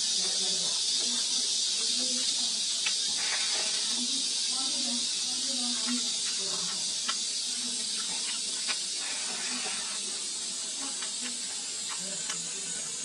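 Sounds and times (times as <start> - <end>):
chewing mouth clicks: 2.7 - 4.0, 5.8 - 9.0, 11.0 - 12.6.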